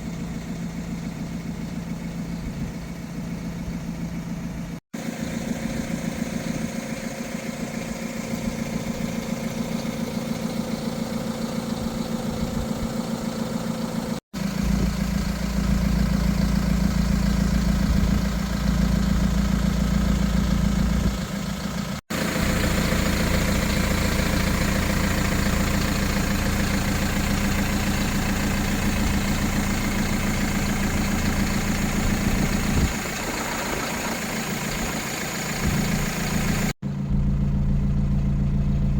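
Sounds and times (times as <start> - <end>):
truck diesel engine idling: 0.0 - 38.9.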